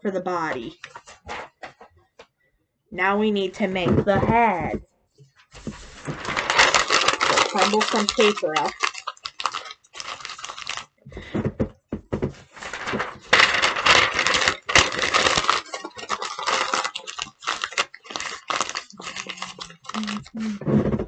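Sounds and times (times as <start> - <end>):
paper being crumpled: 5.5 - 11.0, 12.4 - 20.6.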